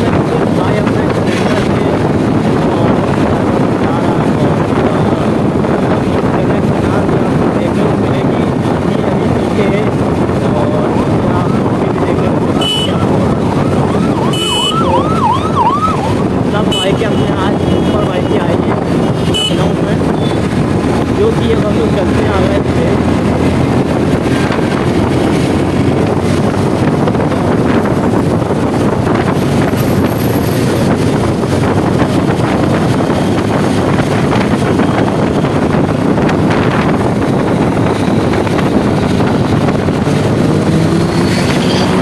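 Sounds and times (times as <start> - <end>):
wind rushing over microphone: 0.0 - 42.0
motorcycle engine: 18.7 - 42.0.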